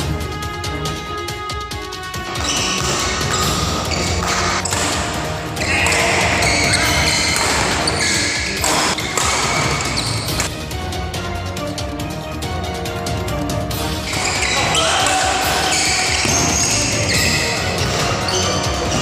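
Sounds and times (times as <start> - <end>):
background music: 0.0 - 19.0
footsteps on court: 2.2 - 10.5
racket hitting shuttlecock: 2.3 - 10.6, 14.0 - 19.0.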